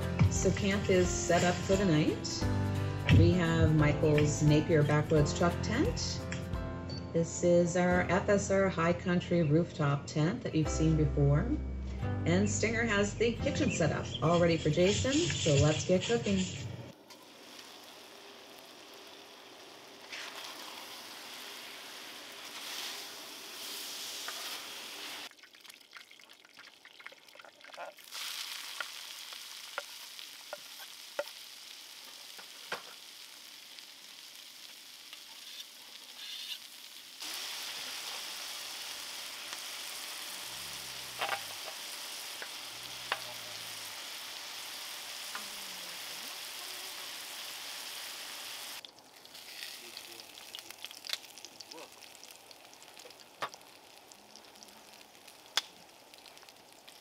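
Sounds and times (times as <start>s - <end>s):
meat and vegetables sizzling: 0.0s - 5.8s, 16.9s - 25.4s, 27.2s - 57.0s
spatula scraping steel: 35.4s - 36.7s.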